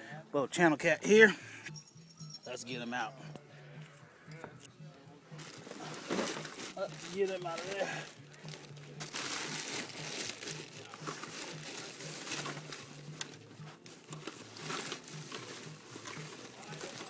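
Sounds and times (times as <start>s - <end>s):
rustling and crinkling: 4.5s - 17.0s.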